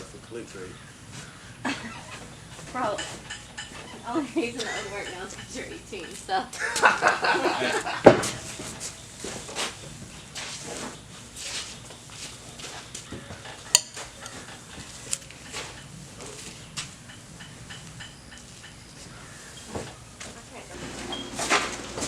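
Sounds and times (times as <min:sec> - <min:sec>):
hay bales being handled: 0:08.0 - 0:13.1.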